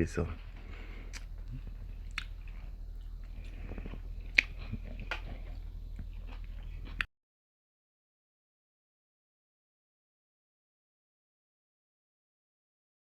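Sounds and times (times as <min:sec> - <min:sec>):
low hum: 0:00.0 - 0:07.1
person chewing food: 0:00.4 - 0:07.1.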